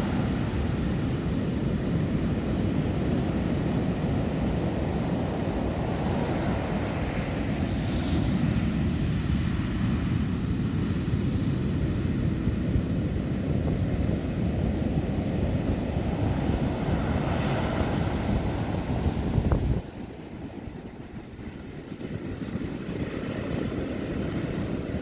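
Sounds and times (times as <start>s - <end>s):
wind buffeting microphone: 0.0s - 25.0s
ocean surf breaking: 15.1s - 25.0s.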